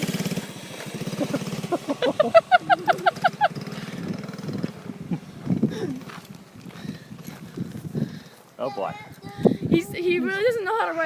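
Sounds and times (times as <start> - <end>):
small motorcycle engine running: 0.0 - 7.8.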